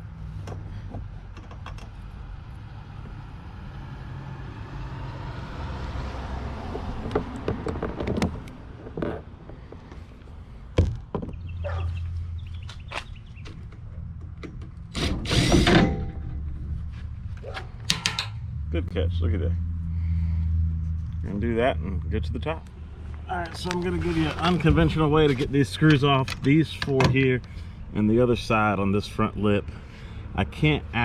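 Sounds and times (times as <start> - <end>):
tools knocking and clicking: 17.4 - 18.4.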